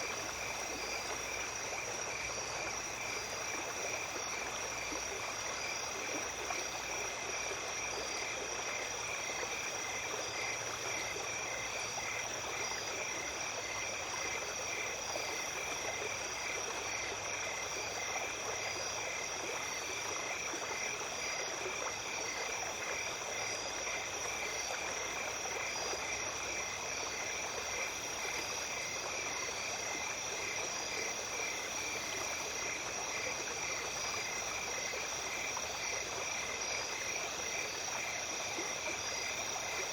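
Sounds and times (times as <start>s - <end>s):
stream running: 0.0s - 39.9s.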